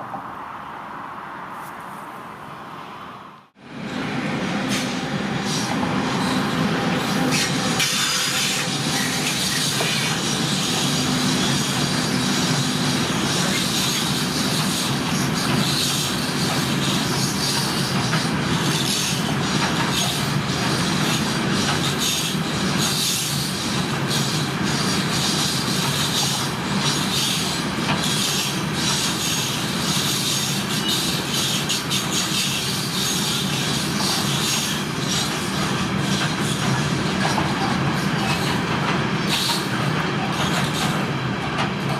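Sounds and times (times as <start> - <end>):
train wheels on rails: 3.4 - 41.9
wheels clicking over rail joints: 13.0 - 41.9.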